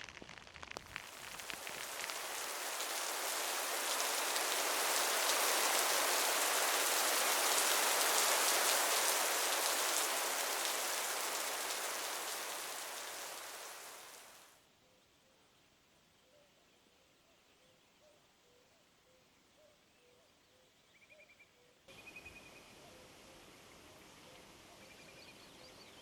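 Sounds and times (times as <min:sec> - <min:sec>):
heavy rain pouring: 0:00.9 - 0:14.5.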